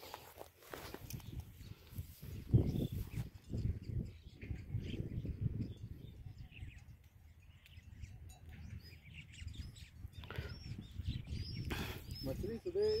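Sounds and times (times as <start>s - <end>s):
small birds chirping: 0.0s - 13.0s
wind rumble on microphone: 0.8s - 13.0s.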